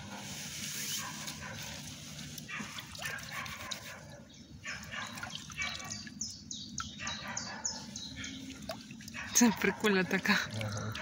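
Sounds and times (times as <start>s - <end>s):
songbird singing: 2.4s - 11.0s.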